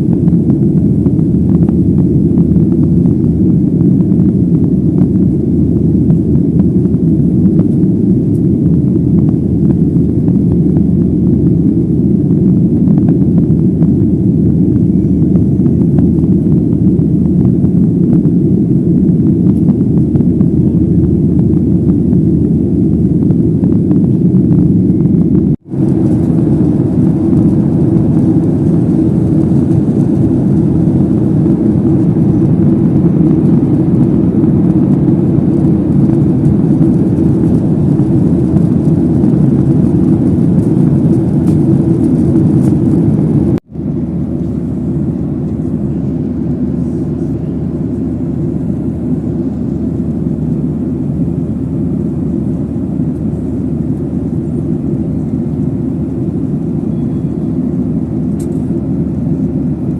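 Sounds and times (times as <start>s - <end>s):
airliner engine and airflow noise: 0.0s - 59.9s.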